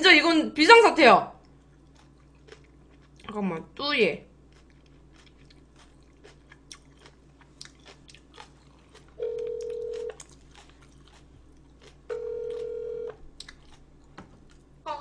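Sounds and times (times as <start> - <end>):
telephone ringback beeps: 9.2 - 10.1, 12.1 - 13.1.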